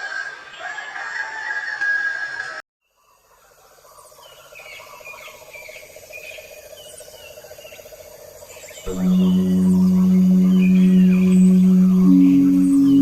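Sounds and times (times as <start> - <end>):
fast-pulsing trill: 8.9 - 13.0.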